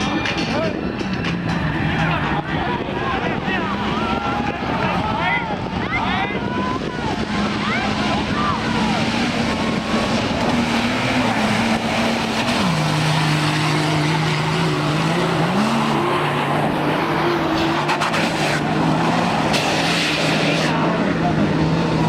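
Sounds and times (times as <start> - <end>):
race vehicle engine under load: 0.0 - 22.0
steady rush of noise: 0.0 - 22.0.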